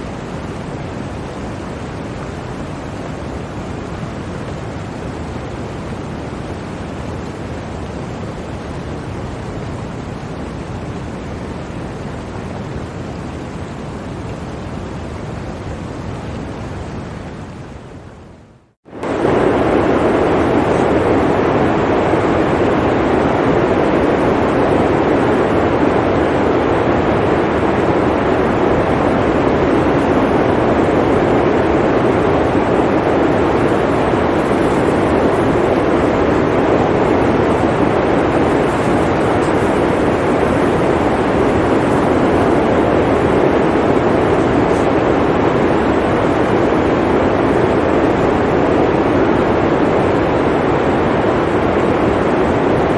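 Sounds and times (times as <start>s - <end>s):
blizzard wind rushing: 18.9s - 52.9s.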